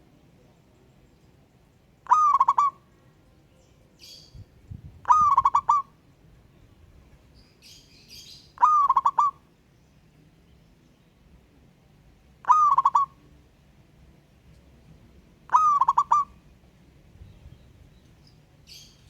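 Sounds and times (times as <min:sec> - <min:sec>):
faint high bird chirps: 0:02.0 - 0:04.5, 0:07.3 - 0:09.3, 0:17.2 - 0:19.0
dove cooing: 0:02.1 - 0:02.8, 0:05.0 - 0:05.9, 0:08.6 - 0:09.4, 0:12.4 - 0:13.2, 0:15.5 - 0:16.4.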